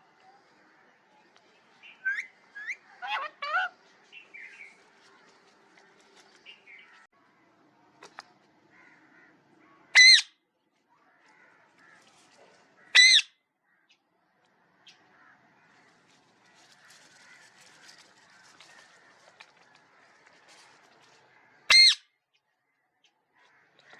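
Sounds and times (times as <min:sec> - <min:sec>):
parrot squawks: 0:02.0 - 0:03.8, 0:10.0 - 0:10.3, 0:12.9 - 0:13.3, 0:21.7 - 0:22.0.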